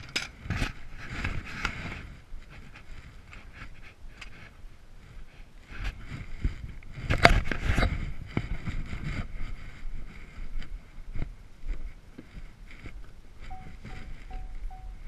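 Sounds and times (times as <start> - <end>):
tools and metal parts clanking: 0.0 - 0.4.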